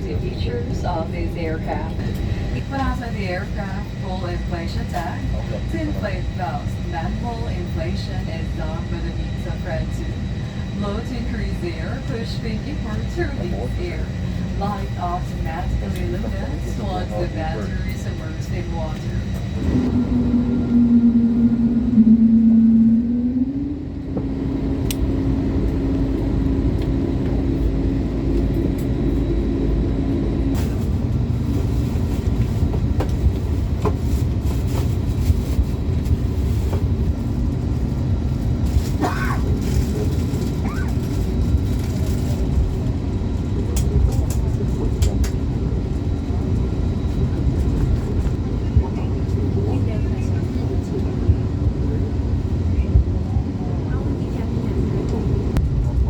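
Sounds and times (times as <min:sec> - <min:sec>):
aircraft cabin rumble: 0:00.0 - 0:56.0
humming tone: 0:17.8 - 0:30.8.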